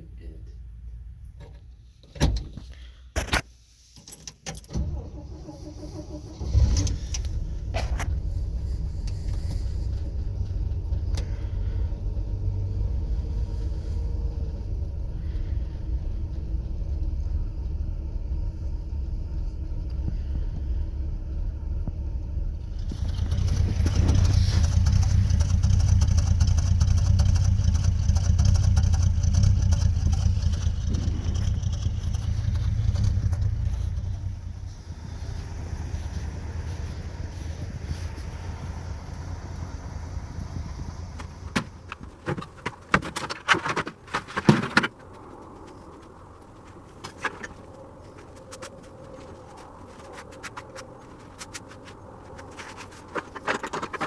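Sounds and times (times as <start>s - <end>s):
pickup engine running: 4.8s - 42.3s.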